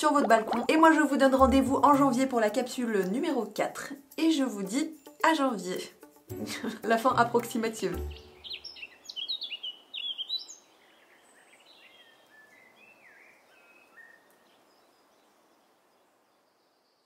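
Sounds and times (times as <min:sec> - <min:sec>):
soft outdoor hiss: 0:00.0 - 0:17.0
birds chirping: 0:06.4 - 0:15.9.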